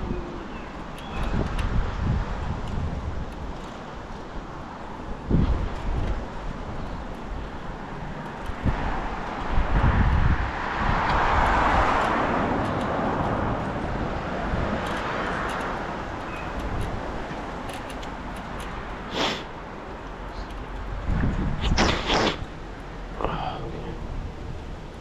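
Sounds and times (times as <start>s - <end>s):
wind rumbling on microphone: 0.0s - 25.0s
car passing: 7.8s - 16.3s
short sharp noises: 21.6s - 22.5s.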